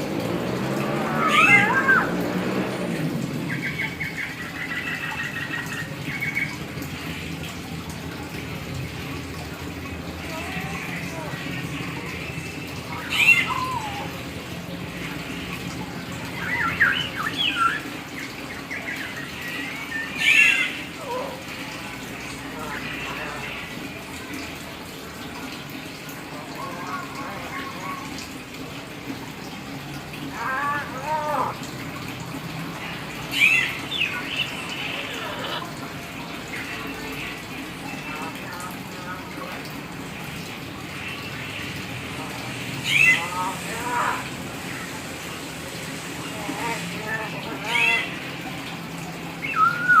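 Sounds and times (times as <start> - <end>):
myna bird calling: 1.2 - 2.2, 10.3 - 15.6, 16.2 - 21.4, 32.8 - 35.7, 42.8 - 44.3, 49.4 - 50.0.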